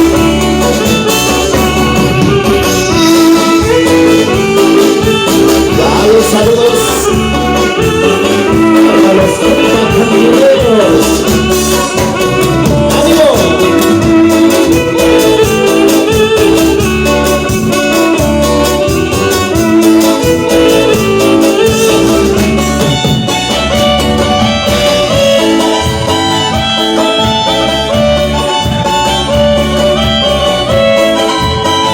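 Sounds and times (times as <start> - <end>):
band playing dance music: 0.0 - 31.9
person singing: 5.0 - 15.0.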